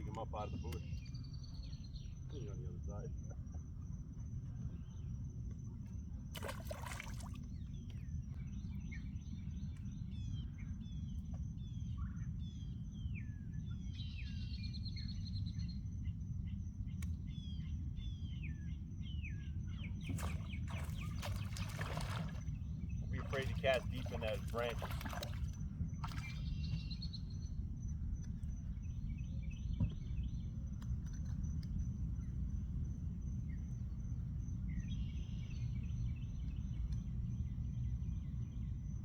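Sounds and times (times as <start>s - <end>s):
birds chirping: 0.0s - 3.3s, 19.1s - 27.5s.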